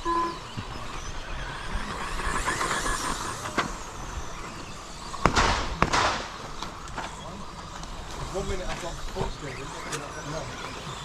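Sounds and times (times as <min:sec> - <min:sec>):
rc trucks motors buzzing: 0:00.0 - 0:11.0
sharp knocks of trucks landing: 0:05.2 - 0:07.2.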